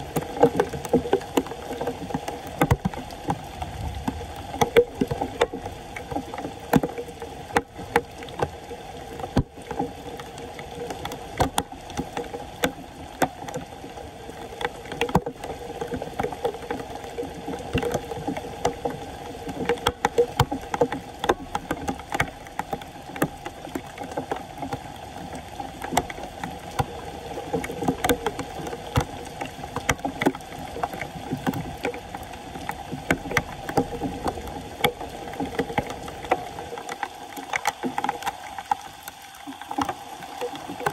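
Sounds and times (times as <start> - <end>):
floodwater sloshing and splashing: 0.0 - 40.9
small sharp knocks and clicks: 0.1 - 3.4, 10.8 - 13.6, 17.5 - 32.0, 32.6 - 40.0.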